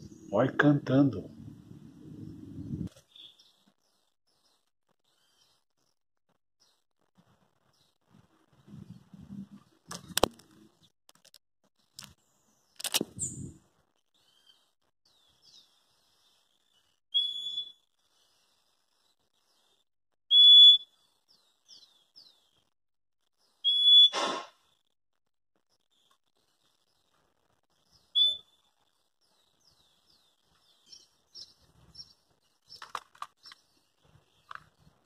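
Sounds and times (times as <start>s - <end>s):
small birds chirping: 0.0s - 6.0s, 6.6s - 10.9s, 11.8s - 24.8s, 25.6s - 35.0s
high whistled bird notes: 17.1s - 17.8s, 20.3s - 20.9s, 23.6s - 24.4s, 28.1s - 28.6s.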